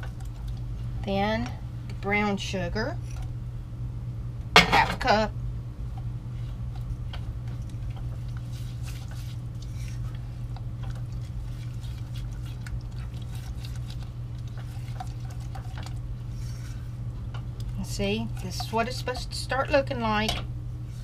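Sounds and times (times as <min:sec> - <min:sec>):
low hum: 0:00.0 - 0:21.0
spoon stirring thick mixture: 0:06.0 - 0:20.1.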